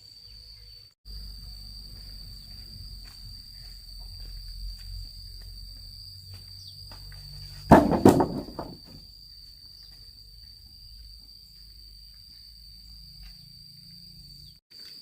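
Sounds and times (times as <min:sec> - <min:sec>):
crickets trilling: 0:00.0 - 0:15.0
hard object clattering down: 0:07.7 - 0:09.0.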